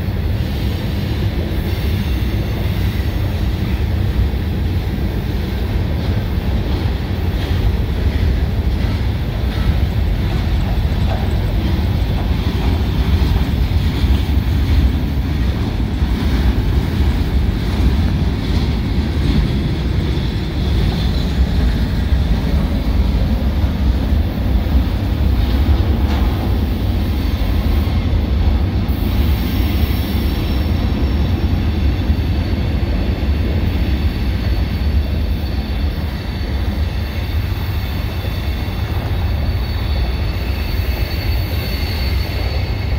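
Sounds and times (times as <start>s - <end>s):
freight train wheels rumbling: 0.0s - 42.9s.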